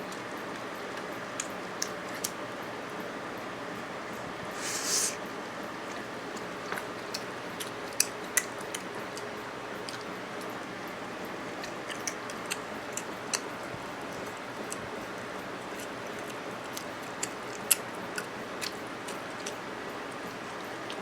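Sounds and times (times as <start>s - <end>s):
steady hiss: 4.5s - 5.3s
chewing clicks and mouth smacks: 5.9s - 10.6s, 11.5s - 13.6s, 15.6s - 21.0s.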